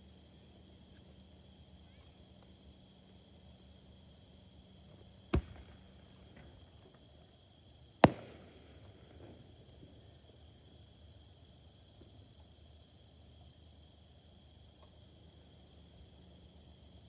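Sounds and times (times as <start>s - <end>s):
crickets chirring: 0.0s - 17.0s
firework bangs: 5.4s - 6.6s, 8.0s - 9.4s.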